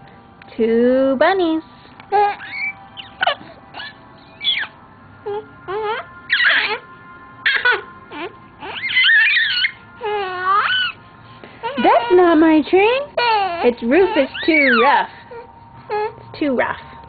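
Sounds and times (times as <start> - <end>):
baby squealing and cooing: 2.1 - 4.8, 5.7 - 6.8, 7.5 - 11.0, 13.2 - 16.1.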